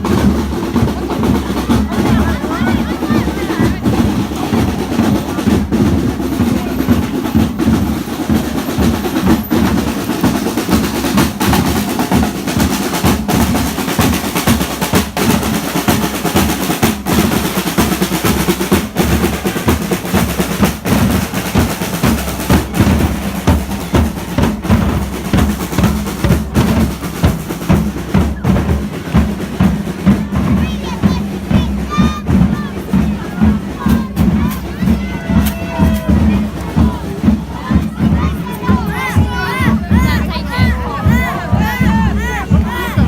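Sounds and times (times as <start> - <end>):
fast dense drumming: 0.0 - 43.0.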